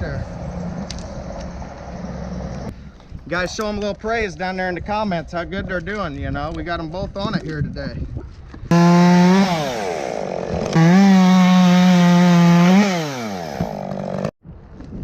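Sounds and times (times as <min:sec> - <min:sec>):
chainsaw revving: 0:08.7 - 0:14.3.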